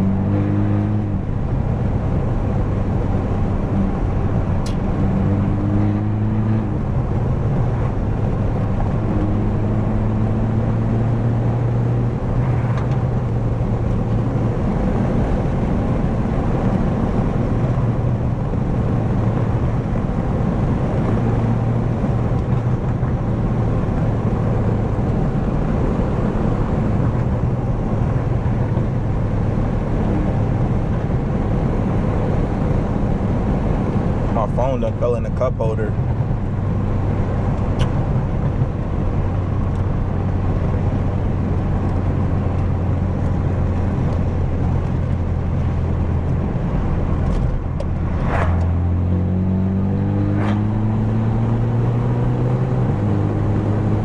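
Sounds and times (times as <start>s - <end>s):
car engine droning in cabin: 0.0s - 54.0s.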